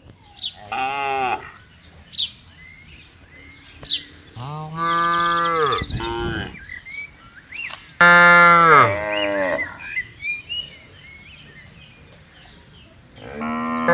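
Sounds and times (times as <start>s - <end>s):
cow mooing: 4.2s - 6.6s, 8.0s - 9.8s, 13.2s - 13.9s.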